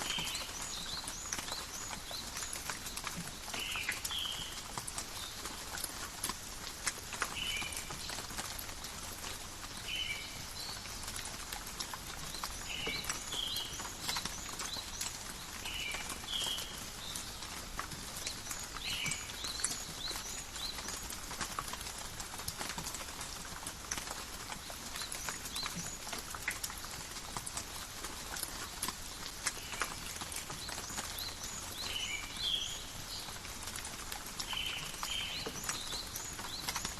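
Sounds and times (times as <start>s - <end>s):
drips ticking on leaves: 0.0s - 36.9s
gentle rain hiss: 0.0s - 36.9s.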